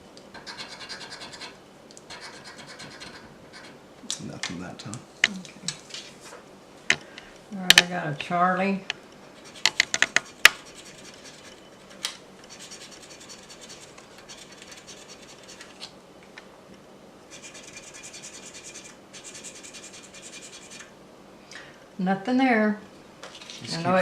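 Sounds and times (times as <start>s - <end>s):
lottery ticket being scratched: 0.4s - 4.9s, 9.4s - 15.8s, 17.3s - 20.9s.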